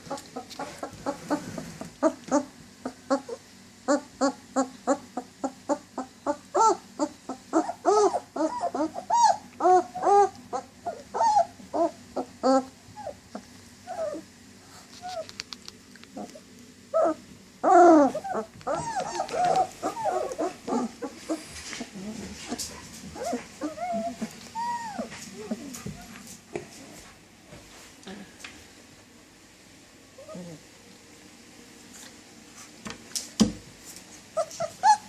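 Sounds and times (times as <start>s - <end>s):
dog whining and whimpering: 0.1s - 14.3s, 16.2s - 26.2s, 30.2s - 30.6s, 34.4s - 35.0s.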